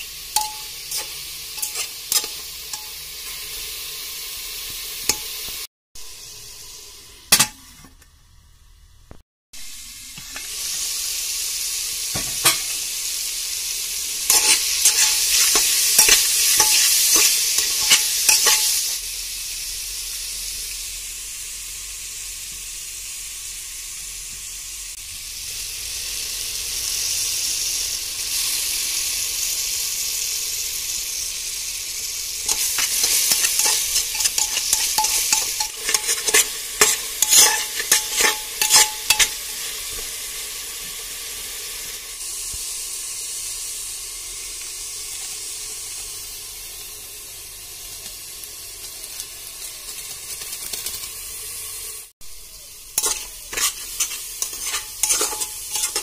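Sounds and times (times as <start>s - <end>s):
chicken sizzling in a pot: 0.0s - 56.0s
spatula scraping a pot: 0.4s - 3.0s, 14.3s - 19.0s, 32.4s - 39.7s, 53.0s - 56.0s.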